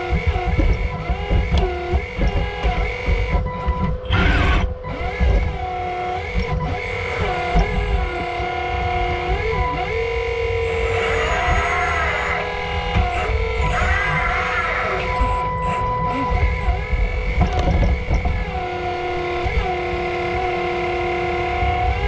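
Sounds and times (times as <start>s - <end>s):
hydraulic pump and motors whining: 0.0s - 22.0s.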